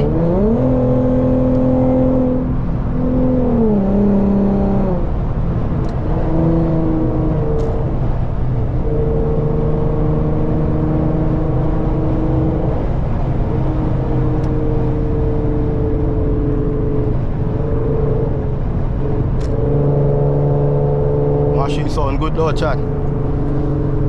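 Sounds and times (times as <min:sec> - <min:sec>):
car engine and exhaust drone: 0:00.0 - 0:24.0
man talking: 0:21.5 - 0:22.9.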